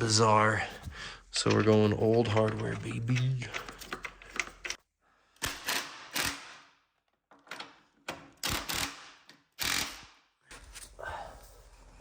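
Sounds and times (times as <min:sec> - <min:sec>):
metallic clicks and clanks of tools: 0:01.4 - 0:04.8.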